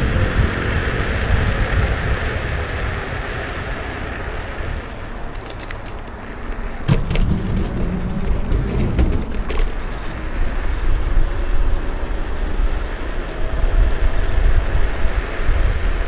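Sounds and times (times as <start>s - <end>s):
sharp clicks and rattles: 0.0s - 12.7s
wind and road rumble: 0.0s - 16.0s.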